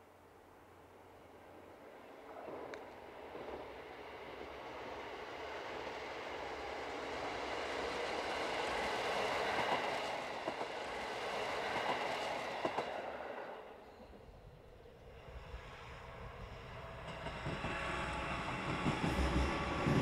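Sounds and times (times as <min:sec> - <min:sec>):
diesel railcar passing: 0:00.1 - 0:20.0.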